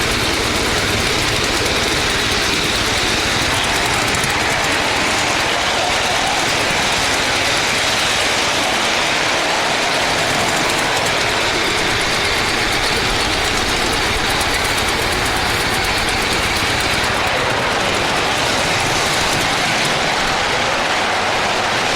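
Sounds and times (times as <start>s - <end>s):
miniature train running on track: 0.0s - 21.9s.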